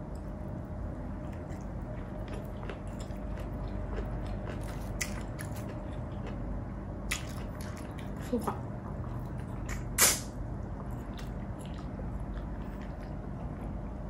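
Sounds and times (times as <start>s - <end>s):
steady low hum: 0.0s - 14.0s
person chewing and biting food: 1.0s - 6.4s.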